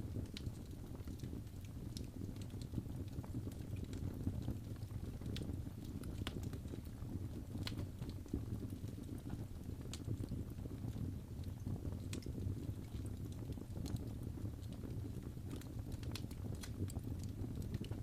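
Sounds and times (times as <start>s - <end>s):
fire crackling and rumbling: 0.0s - 18.0s.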